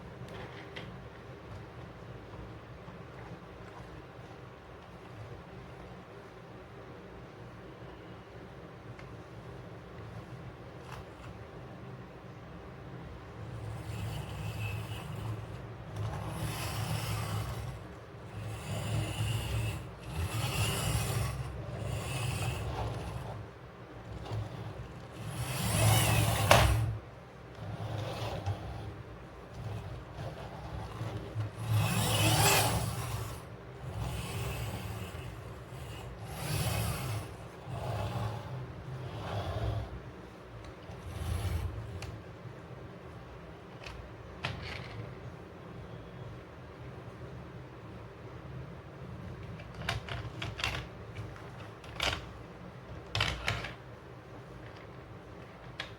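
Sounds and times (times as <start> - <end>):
plastic toy vehicles rolling: 0.2 - 1.9, 13.3 - 42.4, 43.0 - 45.4, 49.1 - 55.9.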